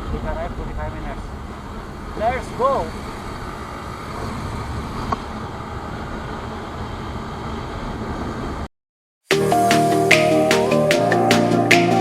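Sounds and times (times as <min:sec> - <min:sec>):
motorcycle engine and wind noise: 0:00.0 - 0:08.6.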